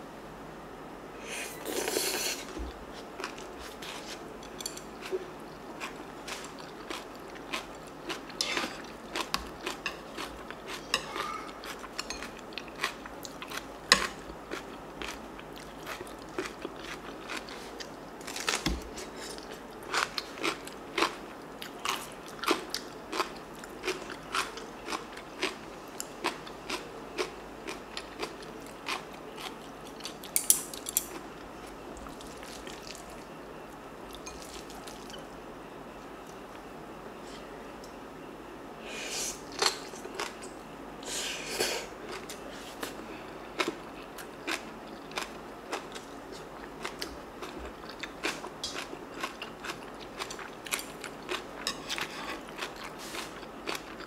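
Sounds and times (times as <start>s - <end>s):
chewing crunchy food: 1.7s - 33.4s, 34.1s - 35.2s, 39.5s - 40.6s, 42.0s - 54.0s.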